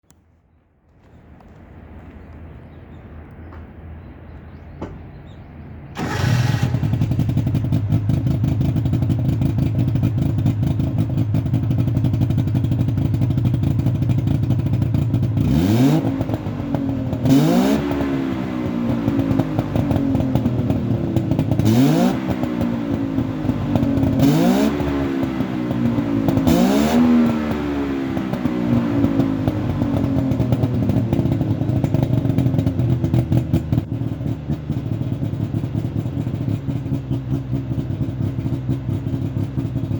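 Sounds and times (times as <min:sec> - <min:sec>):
two-stroke engine idling and revving: 0:05.9 - 0:39.9.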